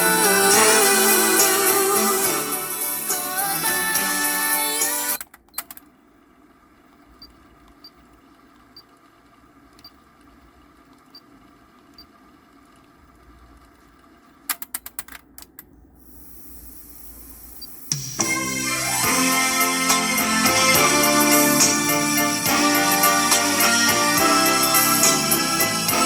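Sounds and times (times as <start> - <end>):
tape playback hiss: 0.0 - 5.2, 16.0 - 26.0.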